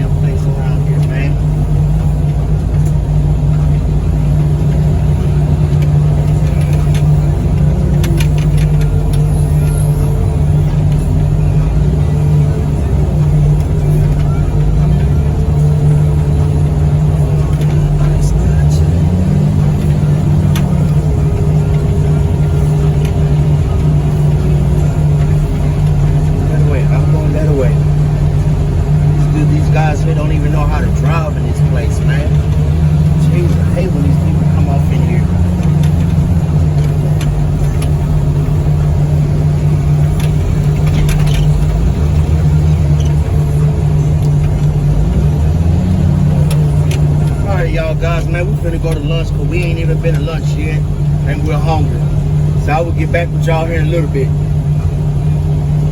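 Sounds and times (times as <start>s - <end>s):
vehicle engine droning: 0.0s - 55.9s.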